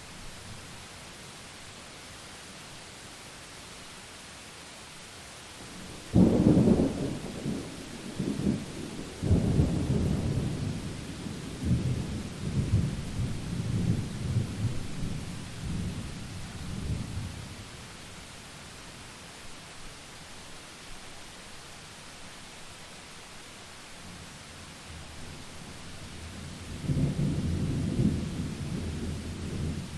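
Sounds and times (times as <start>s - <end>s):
steady rain: 0.0s - 29.9s
thunder rumbling: 26.6s - 29.9s.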